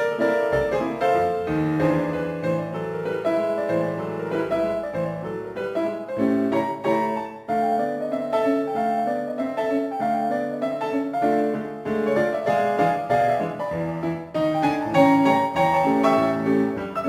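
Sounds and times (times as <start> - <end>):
lively solo piano: 0.0 - 17.0.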